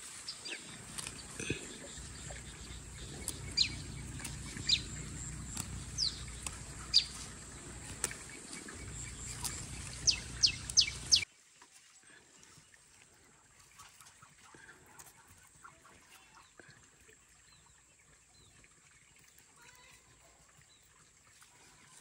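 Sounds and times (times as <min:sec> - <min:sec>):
bird chirps: 0:00.3 - 0:11.2.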